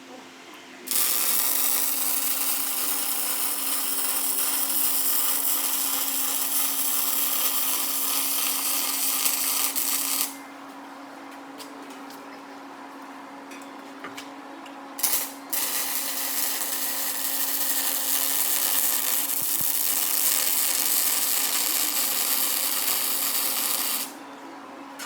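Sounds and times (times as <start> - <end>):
welding arc hissing: 0.9 - 10.4, 15.0 - 24.2
welding machine humming: 0.9 - 10.4, 15.0 - 24.2.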